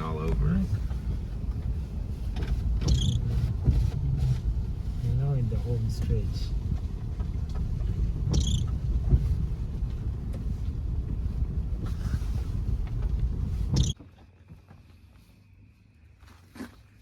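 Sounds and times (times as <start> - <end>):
car rumbling on dirt road: 0.0 - 17.0
sharp knocks and clicks: 6.7 - 11.2.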